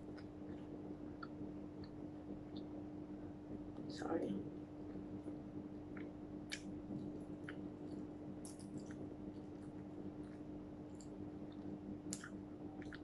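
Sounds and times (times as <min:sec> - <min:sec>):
person chewing food: 0:00.0 - 0:02.8, 0:04.6 - 0:13.0
steady low hum: 0:00.0 - 0:13.0
wet mouth clicks and smacks: 0:05.9 - 0:13.0.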